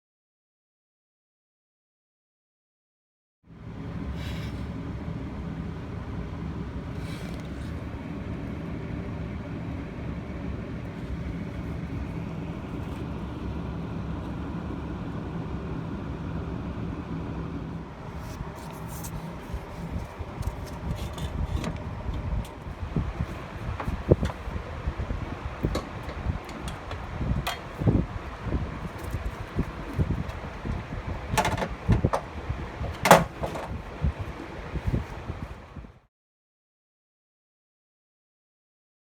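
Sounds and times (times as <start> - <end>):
car engine running: 5.4 - 35.4
sharp clicks and knocks: 25.6 - 27.8, 31.3 - 32.3.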